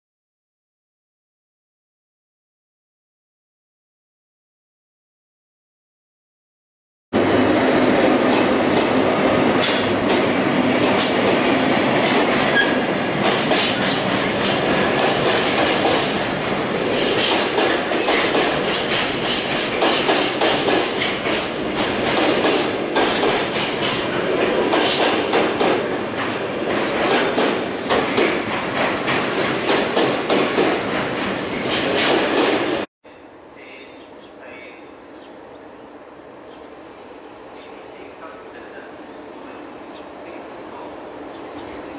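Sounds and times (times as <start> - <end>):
freight train rumbling past: 7.2 - 41.9
wheels clicking over rail joints: 12.0 - 32.6.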